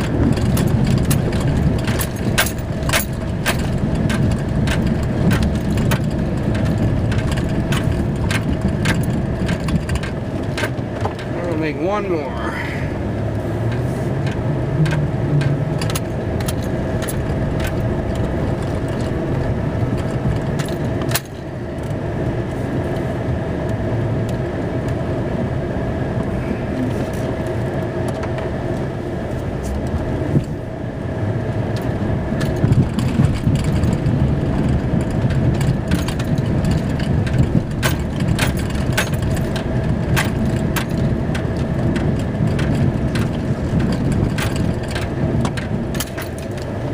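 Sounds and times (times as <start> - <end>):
clicks and rattles: 0.0 - 11.6, 13.6 - 22.0, 31.7 - 46.9
snowplow engine running: 0.0 - 46.9.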